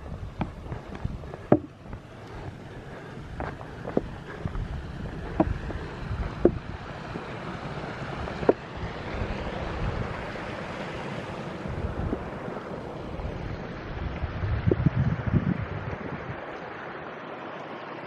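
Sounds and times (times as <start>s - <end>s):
wind buffeting microphone: 0.0s - 16.5s
steady rushing noise: 0.0s - 18.0s
sharp knocks: 1.5s - 1.7s.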